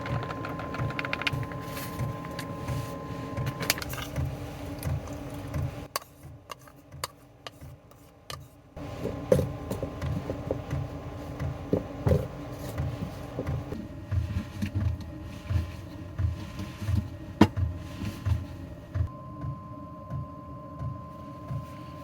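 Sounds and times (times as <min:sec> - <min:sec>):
dough kneading thuds: 0:08.8 - 0:19.1.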